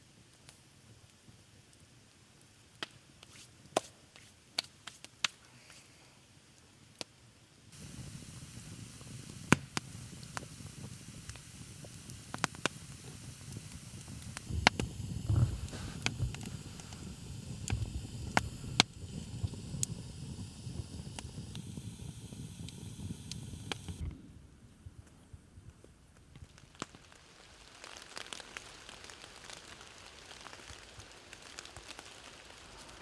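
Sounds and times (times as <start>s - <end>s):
campfire crackling and popping: 2.5s - 5.8s, 7.8s - 24.0s, 26.3s - 33.0s
steady low rush: 7.8s - 24.0s.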